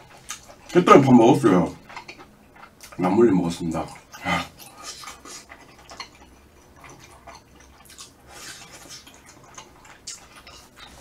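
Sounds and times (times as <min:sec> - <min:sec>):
wet chewing and smacking: 0:00.0 - 0:11.0.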